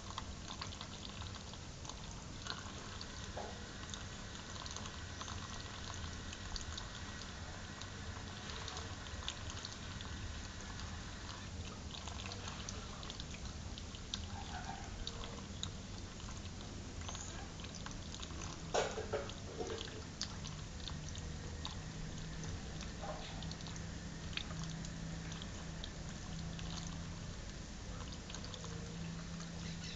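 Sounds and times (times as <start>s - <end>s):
water drips: 0.0s - 29.9s
water running: 0.0s - 29.9s
parrot calls: 29.6s - 29.9s.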